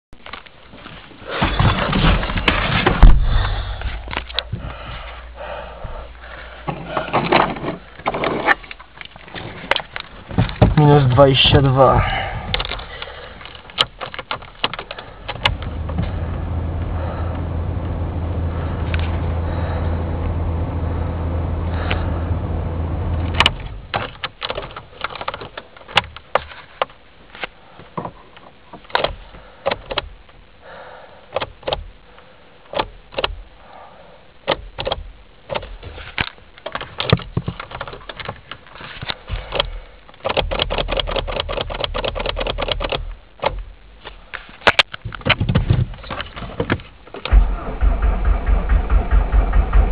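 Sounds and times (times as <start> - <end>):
diesel engine low drone: 3.0 - 7.1, 10.9 - 13.6, 14.9 - 24.0, 47.2 - 49.9
sharp clicks and knocks: 12.5 - 17.0, 23.2 - 30.4, 31.3 - 31.9, 32.7 - 33.4, 34.4 - 47.5.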